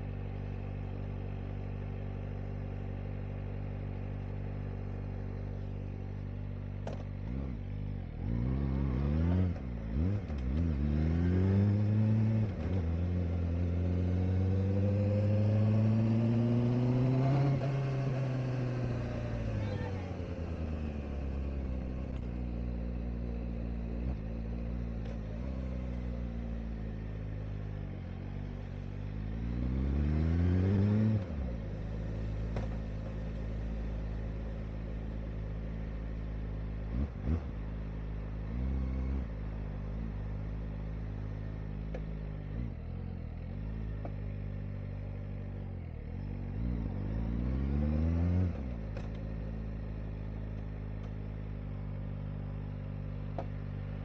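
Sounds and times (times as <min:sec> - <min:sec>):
motorcycle engine revving: 0:06.8 - 0:54.0.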